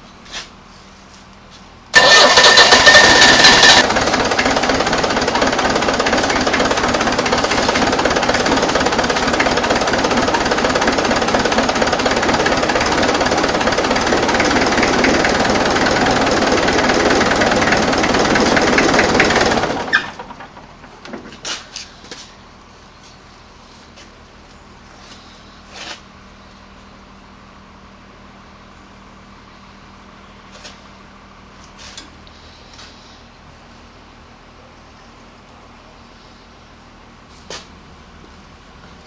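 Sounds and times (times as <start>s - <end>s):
diesel engine cranking: 1.9s - 21.6s
diesel engine idling: 1.9s - 23.6s.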